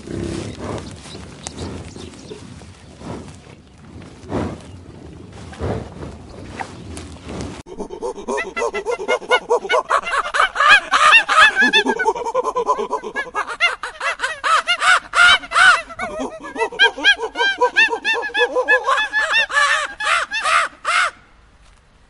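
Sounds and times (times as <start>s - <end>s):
monkeys chattering and calling: 7.7s - 21.1s.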